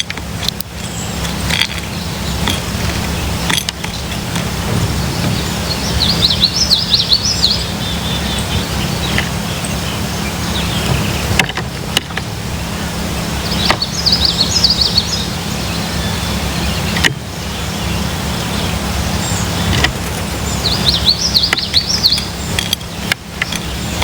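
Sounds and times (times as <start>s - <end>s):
songbird twittering: 0.7s - 24.0s
low rumble: 0.8s - 21.3s.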